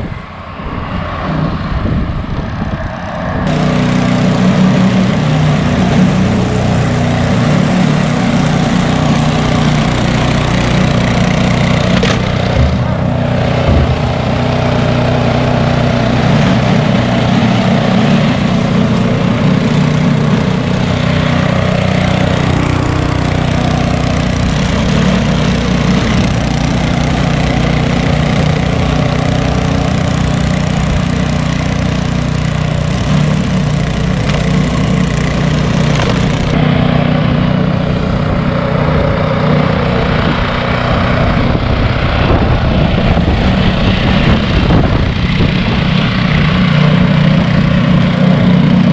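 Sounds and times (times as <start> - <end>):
loader diesel engine under load: 0.0 - 48.9
snowblower working: 0.0 - 48.9.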